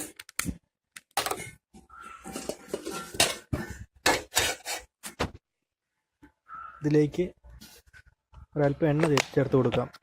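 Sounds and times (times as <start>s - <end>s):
metal cookware clattering: 1.2s - 4.8s.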